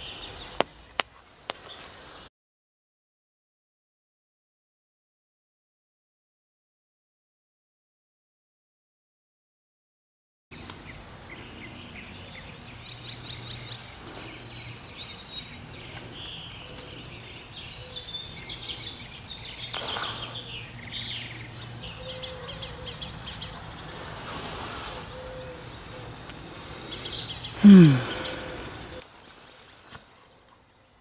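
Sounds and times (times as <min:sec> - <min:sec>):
songbirds chirping and trilling: 0:00.0 - 0:02.3, 0:10.6 - 0:31.0
brief hiss: 0:24.1 - 0:25.2.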